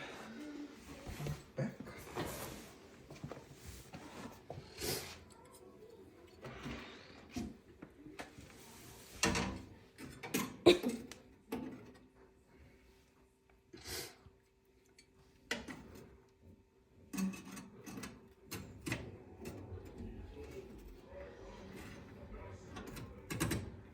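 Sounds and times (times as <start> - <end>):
gas range parts clicking and knocking: 22.7 - 23.9.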